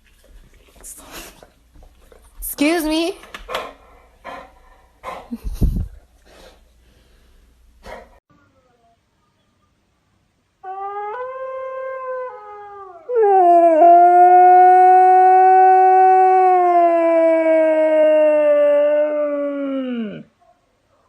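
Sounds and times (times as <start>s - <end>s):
dog howling: 10.6s - 20.3s.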